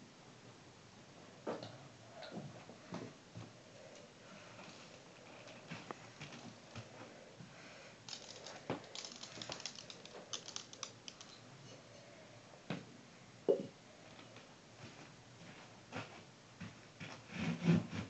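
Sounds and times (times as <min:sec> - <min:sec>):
light clicks and rattles: 0:08.1 - 0:11.8.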